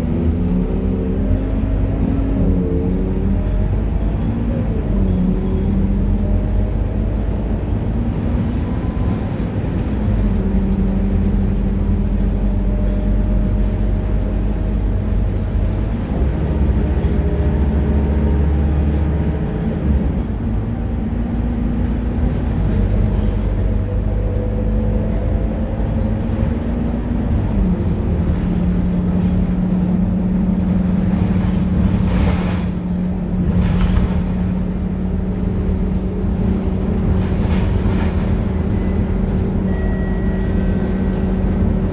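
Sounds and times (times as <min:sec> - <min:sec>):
bus diesel engine running: 0:00.0 - 0:41.9.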